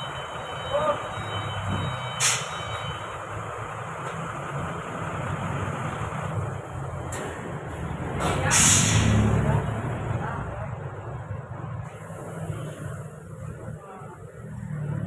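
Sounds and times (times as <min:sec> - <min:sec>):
truck diesel engine running: 0:00.0 - 0:15.0
air hissing: 0:02.2 - 0:02.6, 0:08.5 - 0:09.2.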